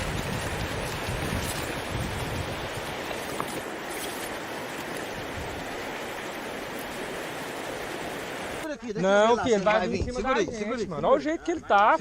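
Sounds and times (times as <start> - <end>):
wind buffeting microphone: 0.0 - 3.8, 4.4 - 6.4
rushing water: 0.0 - 10.4.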